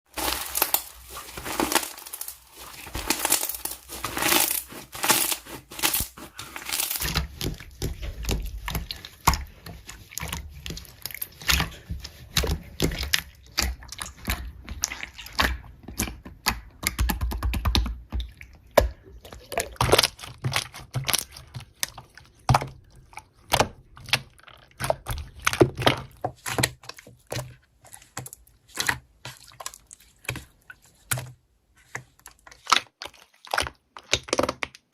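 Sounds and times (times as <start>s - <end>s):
slime crackling and popping: 0.1s - 9.5s, 32.6s - 34.9s.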